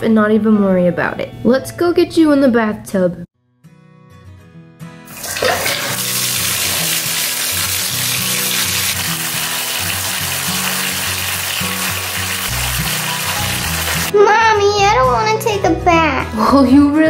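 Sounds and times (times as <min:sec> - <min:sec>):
faucet water splashing into tub: 0:05.1 - 0:14.1.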